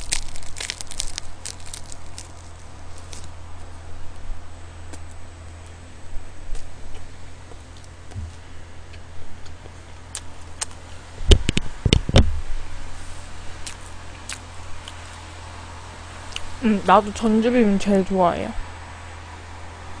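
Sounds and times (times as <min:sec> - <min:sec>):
close chewing: 0:00.0 - 0:03.4, 0:08.9 - 0:10.8, 0:13.6 - 0:15.2, 0:16.3 - 0:16.6
low electrical hum: 0:00.0 - 0:20.0.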